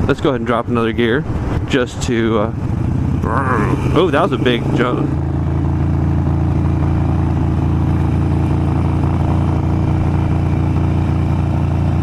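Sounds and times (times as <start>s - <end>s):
motorcycle engine running: 2.4s - 12.0s.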